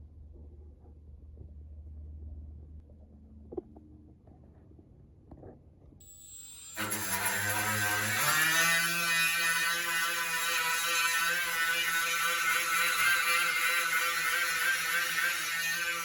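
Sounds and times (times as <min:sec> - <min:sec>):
electric grinder whining: 0:06.1 - 0:16.0.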